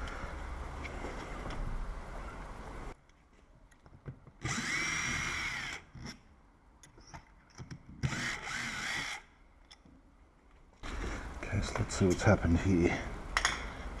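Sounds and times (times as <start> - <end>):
cordless drill motor whine: 4.4 - 5.9, 8.0 - 9.3.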